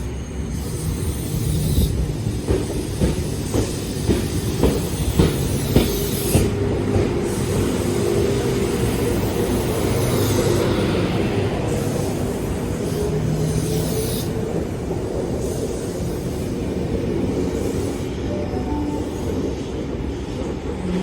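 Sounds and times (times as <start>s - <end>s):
train wheels clacking: 0.6s - 21.0s.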